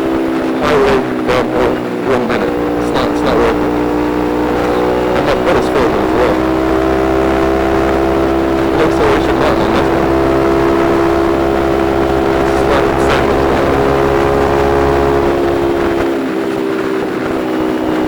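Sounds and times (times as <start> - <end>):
motorcycle engine cruising: 0.0 - 18.0
road rumble: 0.0 - 18.0
wind: 0.0 - 18.0.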